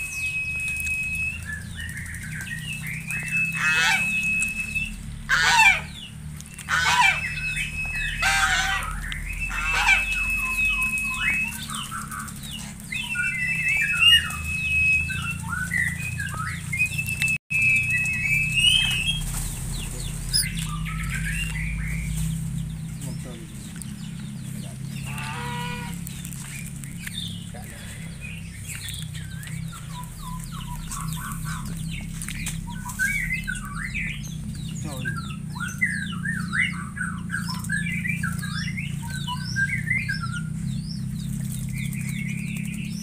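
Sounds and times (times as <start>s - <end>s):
flat high bird whistle: 0.0s - 19.4s, 32.6s - 34.2s
rough rapid bird calls: 0.0s - 43.0s.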